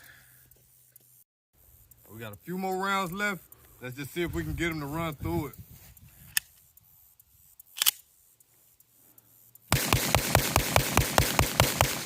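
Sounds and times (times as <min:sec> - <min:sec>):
rapid gunshots echoing: 0:09.7 - 0:12.0.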